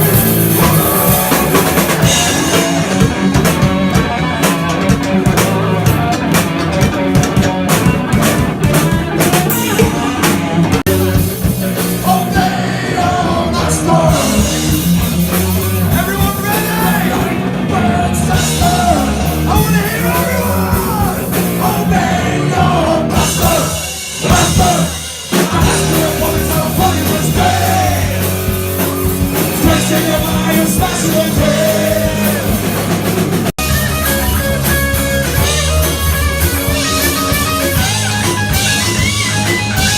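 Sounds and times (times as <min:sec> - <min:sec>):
distorted electric guitars: 0:00.0 - 0:39.9
drum kit: 0:00.0 - 0:39.9
person singing: 0:09.2 - 0:14.7, 0:15.9 - 0:28.5, 0:29.3 - 0:32.9.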